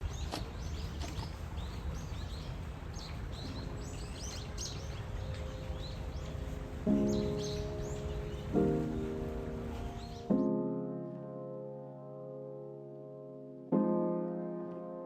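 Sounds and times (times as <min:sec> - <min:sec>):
small birds chirping: 0:00.0 - 0:10.8.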